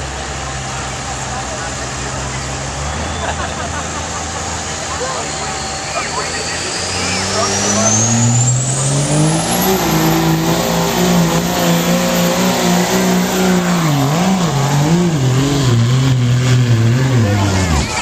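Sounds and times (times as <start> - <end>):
diesel truck engine at full throttle: 0.0 - 18.0
high turbocharger whistle: 2.8 - 3.6, 4.7 - 18.0.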